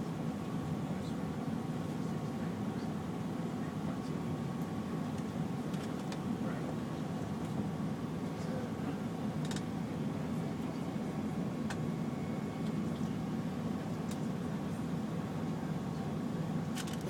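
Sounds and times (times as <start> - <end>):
airliner cabin rumble: 0.0 - 17.0
faint steady tone: 9.8 - 16.4.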